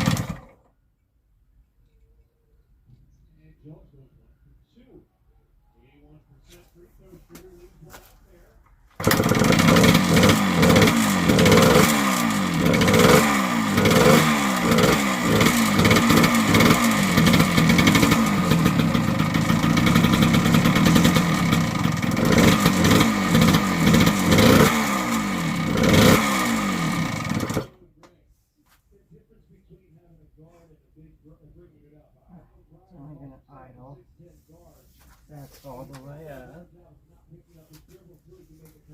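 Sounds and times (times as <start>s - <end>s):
two-stroke engine revving: 0.0s - 0.6s, 9.0s - 27.8s.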